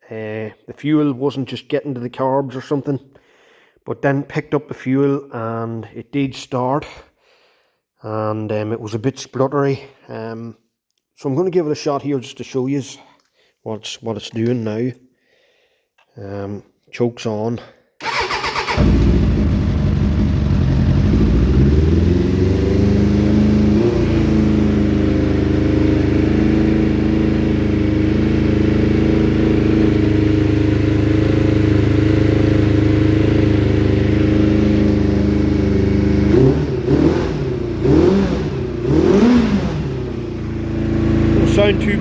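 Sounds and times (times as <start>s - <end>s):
motorcycle engine starting and revving: 18.0s - 42.0s.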